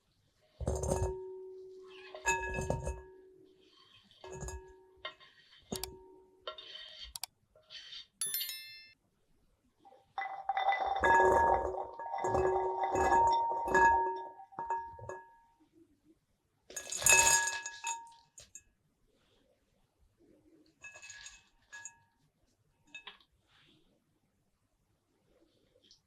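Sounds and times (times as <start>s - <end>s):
utensils clinking against glass bowl: 4.3s - 4.7s, 5.7s - 6.0s, 8.2s - 9.0s, 10.2s - 15.2s.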